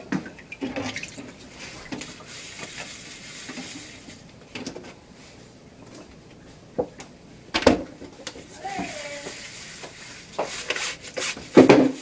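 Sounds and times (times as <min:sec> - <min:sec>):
running water hiss: 0:08.6 - 0:10.2.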